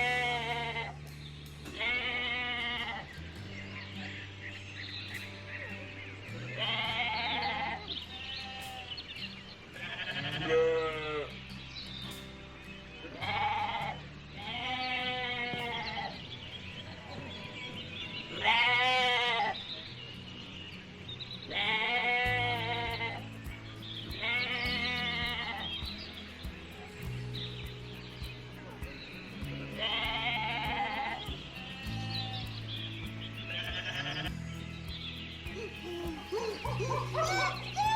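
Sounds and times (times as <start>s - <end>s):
sheep bleating: 0.0s - 1.1s, 1.7s - 3.2s, 6.4s - 9.0s, 9.8s - 11.3s, 13.2s - 16.2s, 18.3s - 19.7s, 21.5s - 23.4s, 24.1s - 25.8s, 29.6s - 32.5s, 33.5s - 34.4s
background music with low notes: 0.0s - 37.9s.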